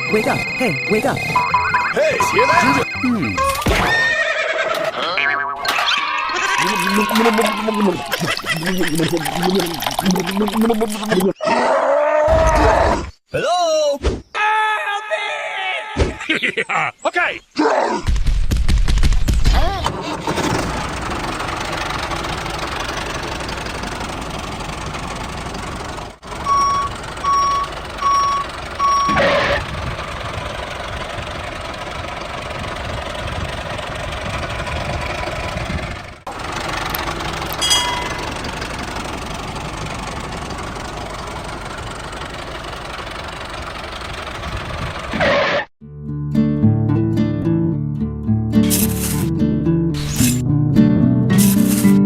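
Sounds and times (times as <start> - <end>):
reversing beeps: 0.0 - 3.6, 26.4 - 29.6
tractor engine running: 19.9 - 45.6, 48.6 - 49.4, 51.3 - 52.0.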